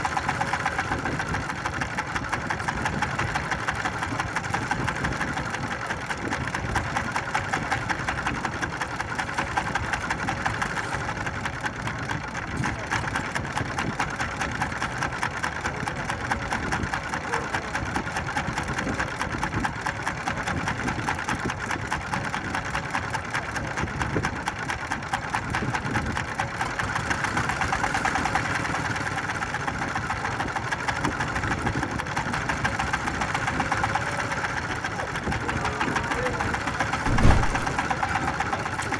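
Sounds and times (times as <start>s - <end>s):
boat engine chugging: 0.0s - 38.9s.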